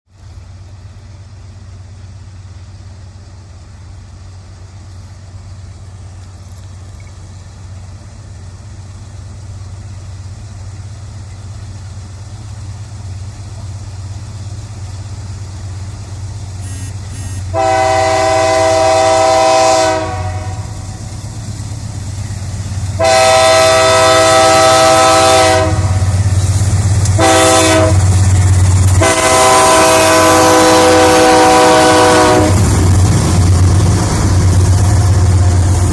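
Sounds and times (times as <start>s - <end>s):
diesel locomotive engine rumble: 0.1s - 35.9s
train air horn blasts: 16.6s - 20.9s, 23.0s - 26.2s, 27.1s - 28.1s, 28.9s - 32.7s.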